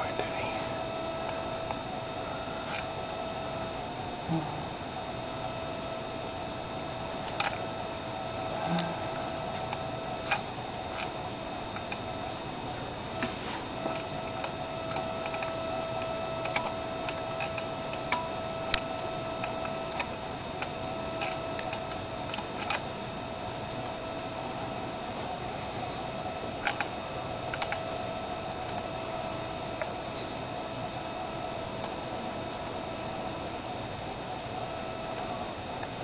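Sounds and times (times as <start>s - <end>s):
electrical hum: 0.0s - 36.0s
sharp electrical ticks and clicks: 2.6s - 3.0s, 7.2s - 7.8s, 9.5s - 23.0s, 26.6s - 28.9s.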